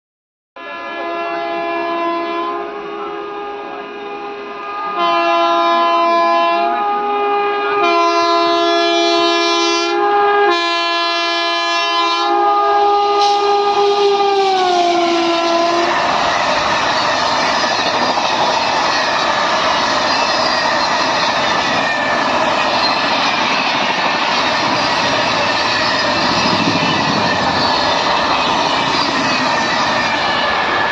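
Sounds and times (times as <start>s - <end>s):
locomotive horn blasts: 0.6s - 18.0s
train clickety-clack on rails: 13.2s - 30.9s.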